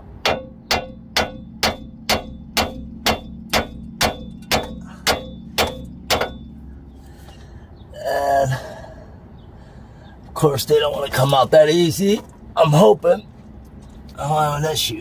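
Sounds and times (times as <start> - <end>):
hammer striking steel: 0.1 - 6.6.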